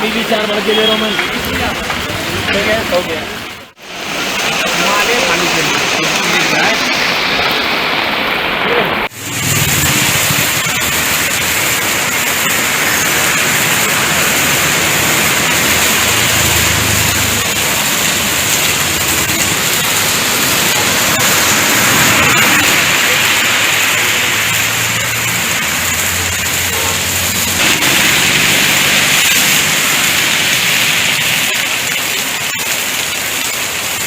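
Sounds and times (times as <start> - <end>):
heavy rain downpour: 0.0 - 34.0.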